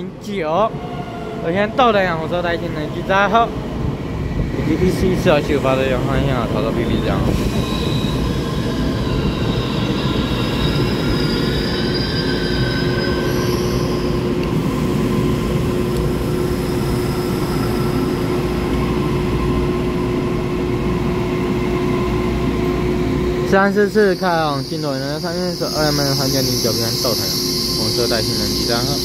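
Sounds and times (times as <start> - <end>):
high wheel squeals: 7.3 - 14.3, 23.9 - 29.0.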